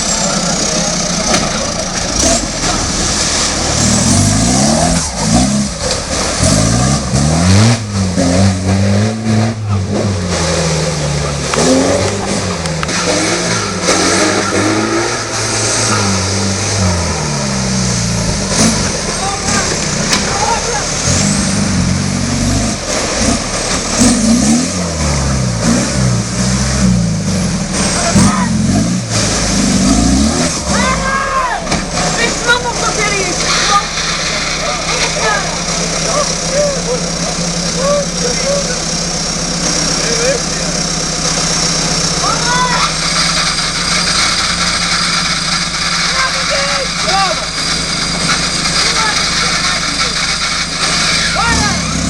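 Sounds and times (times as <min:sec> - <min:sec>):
engine revving hard: 0:00.0 - 0:52.0.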